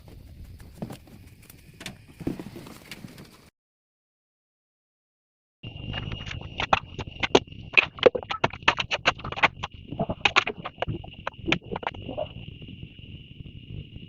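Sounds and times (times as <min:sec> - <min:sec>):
high-pitched hum: 0:05.6 - 0:14.0
sharp knocks and clacks: 0:06.0 - 0:12.0.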